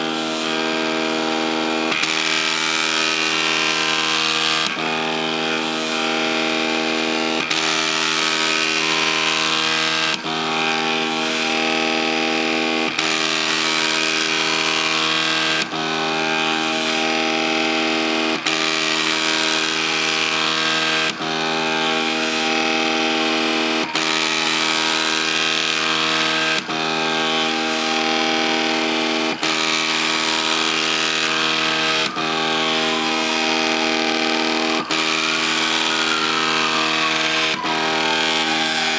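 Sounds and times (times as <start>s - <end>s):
stepper motors whining: 0.0s - 38.9s.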